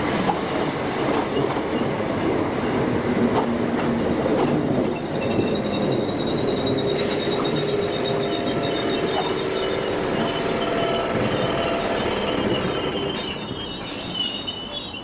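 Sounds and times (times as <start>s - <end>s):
train rumble: 0.0s - 15.0s
train wheels squealing: 4.7s - 15.0s.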